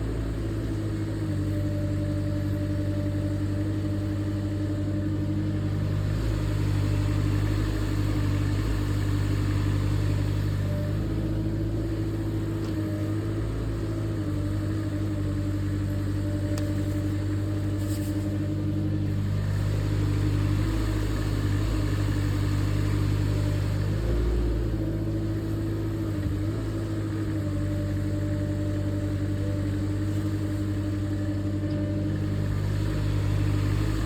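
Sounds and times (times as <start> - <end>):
diesel excavator engine running: 0.0 - 34.0.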